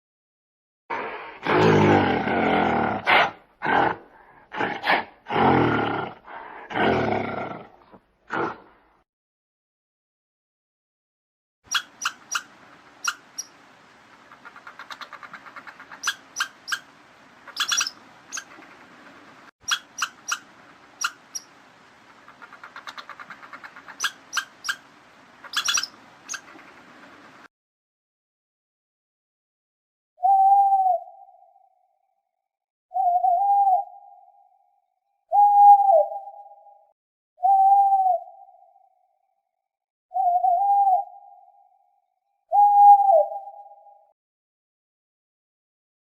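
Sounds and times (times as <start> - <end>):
big cat roaring and growling: 0.9 - 8.8
small animal squeaking: 11.7 - 13.5, 14.4 - 16.9, 17.5 - 18.6, 19.6 - 21.5, 22.3 - 24.8, 25.4 - 26.6.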